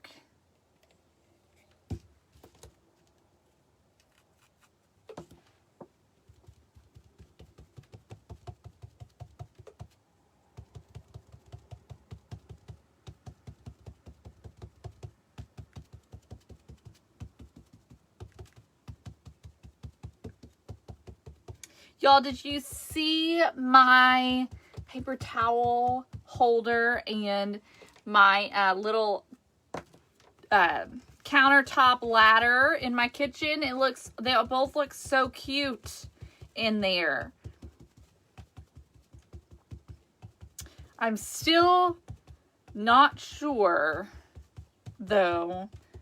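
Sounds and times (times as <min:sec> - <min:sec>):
foam pouncer dabbing taps: 0:24.2 - 0:26.4.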